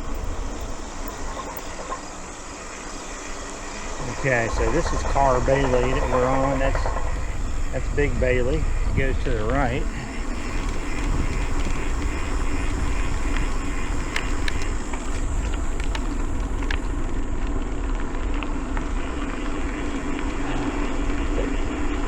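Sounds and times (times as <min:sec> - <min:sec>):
bike tyres humming: 0:00.0 - 0:22.0
wind rushing over microphone: 0:00.0 - 0:22.0
sharp clicks: 0:09.5 - 0:17.0.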